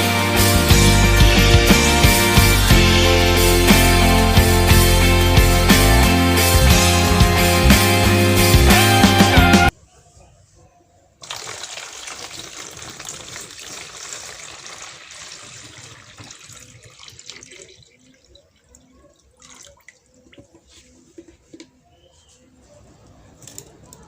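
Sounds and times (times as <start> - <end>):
water splashing in a fountain: 11.2 - 20.6
faint water drips: 11.2 - 21.7.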